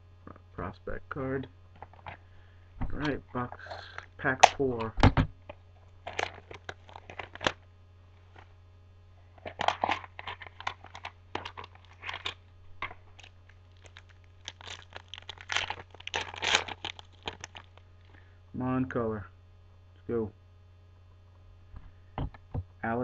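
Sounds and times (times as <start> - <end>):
card wrapper crinkling: 1.8 - 2.2, 5.5 - 7.6, 9.3 - 18.1.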